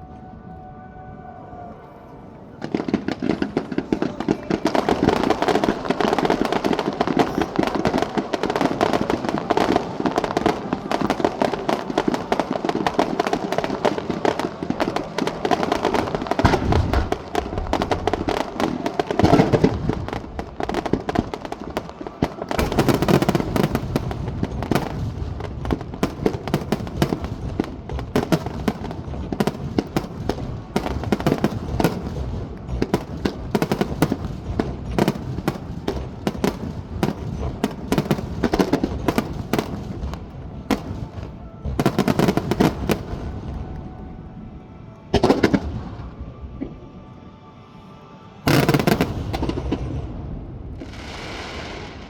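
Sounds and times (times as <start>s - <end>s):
fireworks barrage crackling: 2.4s - 46.8s, 48.5s - 52.0s
deep firework booms: 2.6s - 43.7s.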